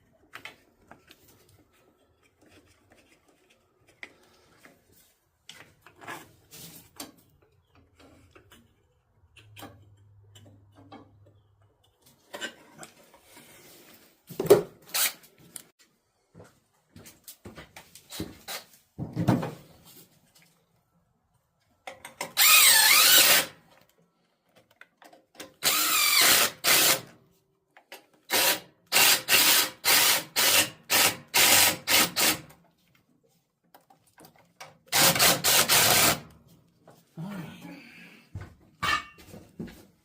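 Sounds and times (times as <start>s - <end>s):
power drill driving bolts: 14.9s - 15.2s, 22.2s - 23.6s, 25.5s - 27.1s, 28.3s - 32.5s, 34.9s - 36.3s.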